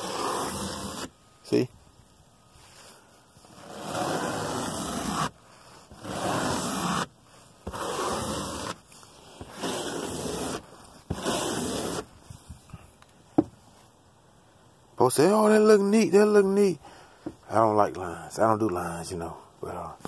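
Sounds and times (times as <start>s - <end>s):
brush scrubbing carpet: 3.6s - 5.3s, 6.0s - 7.1s, 7.7s - 8.8s, 9.4s - 12.0s.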